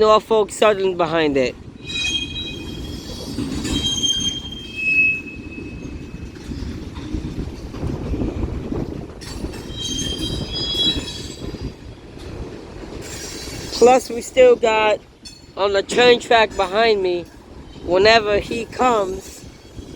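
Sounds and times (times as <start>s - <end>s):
freight train rumbling past: 0.0s - 19.9s
train wheels squealing: 1.8s - 6.7s, 9.2s - 11.8s.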